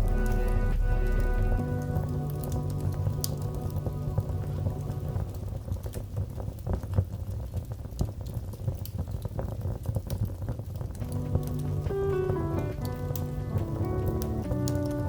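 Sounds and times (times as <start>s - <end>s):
soft sustained music tones: 0.0s - 6.2s, 11.0s - 15.0s
wood fire crackling: 0.0s - 15.0s.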